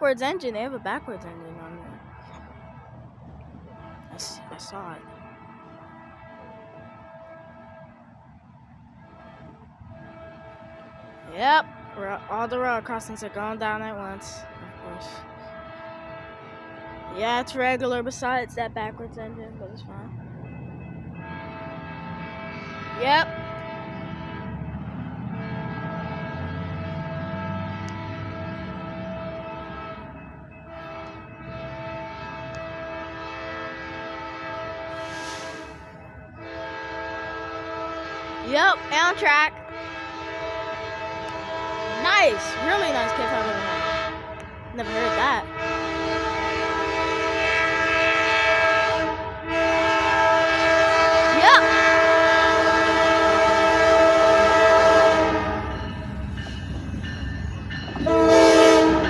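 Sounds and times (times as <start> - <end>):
train rumble: 0.0 - 59.0
locomotive air horn chord: 3.8 - 8.1, 9.0 - 12.6, 14.4 - 17.2, 21.2 - 24.6, 25.4 - 30.1, 30.8 - 35.8, 36.4 - 55.7, 58.0 - 59.0.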